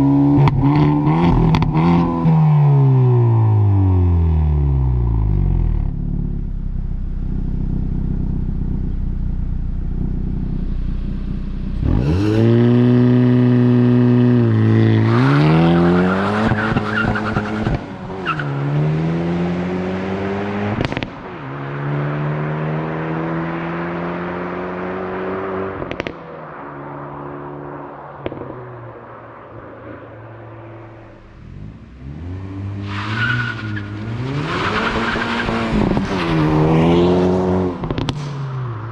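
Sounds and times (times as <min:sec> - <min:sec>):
car engine revving: 0:00.0 - 0:26.2, 0:28.2 - 0:38.9
exhaust cracks: 0:37.7 - 0:38.9.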